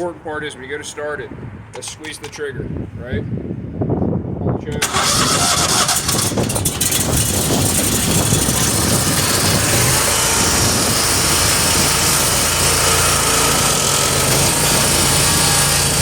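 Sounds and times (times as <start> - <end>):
pressure washer engine running: 4.8 - 16.0.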